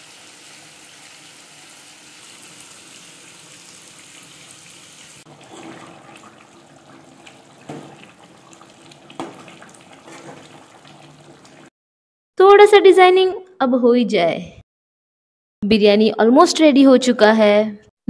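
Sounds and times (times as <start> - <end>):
chicken masala sizzling: 0.0 - 11.7
gravy bubbling: 5.3 - 11.7
ladle knocking against pot: 7.6 - 8.0, 9.1 - 10.5.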